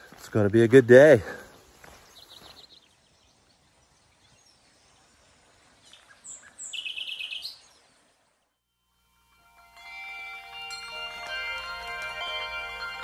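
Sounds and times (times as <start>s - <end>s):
songbirds singing: 0.0s - 8.6s.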